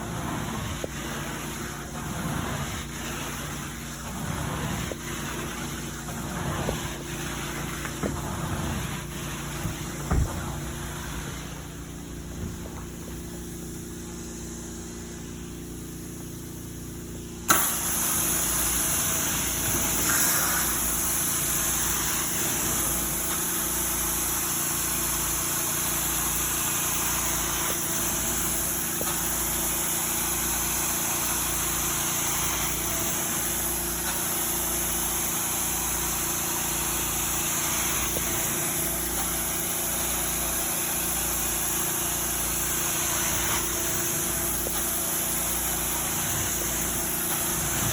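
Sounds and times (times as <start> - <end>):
rush of vacuum suction: 0.0 - 13.9, 17.5 - 47.9
vacuum machine motor humming: 26.2 - 47.9.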